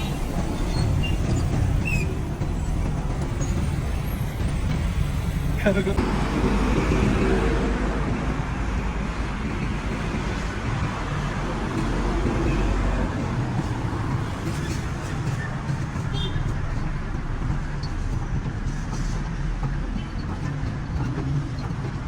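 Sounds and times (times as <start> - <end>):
engine hum: 0.0 - 22.0
vehicles passing: 0.0 - 22.0.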